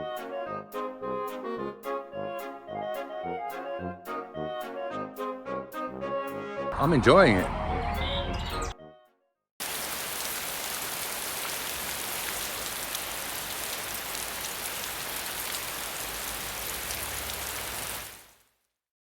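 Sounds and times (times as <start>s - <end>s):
steady rain falling: 9.6s - 18.6s.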